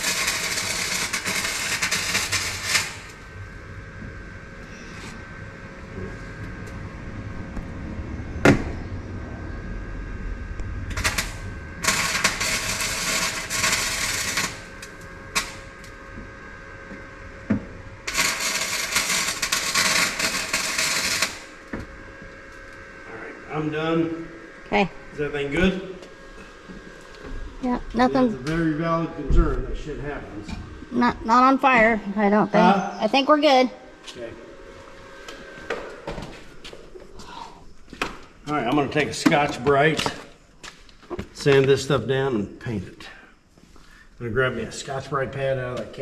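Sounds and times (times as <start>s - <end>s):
arc welding crackling hiss: 0.0s - 5.2s, 10.8s - 22.8s.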